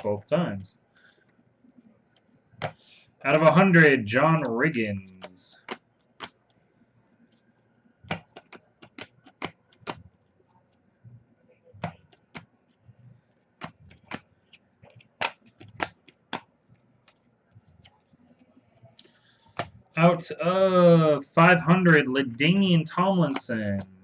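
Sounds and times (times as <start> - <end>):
trading cards flicked through: 4.4 - 6.4, 8.0 - 10.1, 13.6 - 18.1.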